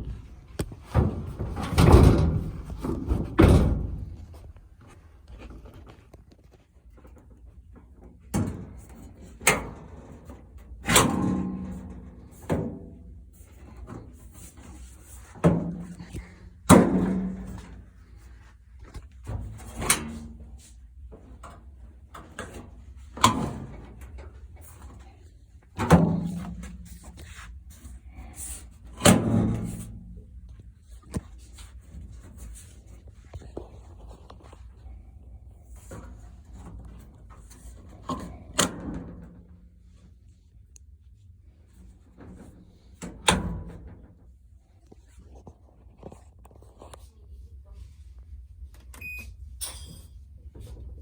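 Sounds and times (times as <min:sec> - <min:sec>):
sheet metal knocks and bangs: 0:00.0 - 0:04.4.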